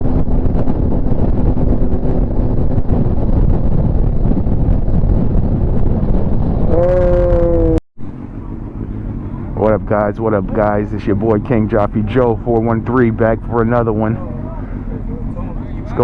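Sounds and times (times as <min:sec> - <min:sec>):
motorcycle riding at speed: 0:00.0 - 0:16.0
wind buffeting microphone: 0:00.0 - 0:16.0.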